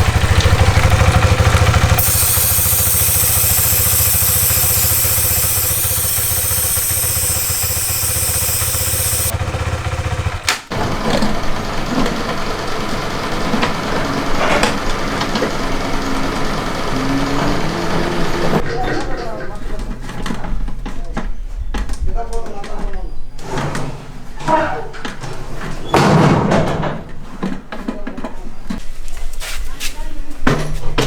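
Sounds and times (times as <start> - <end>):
motorcycle engine at low revs: 0.0 - 18.6
steady hiss: 1.8 - 9.3.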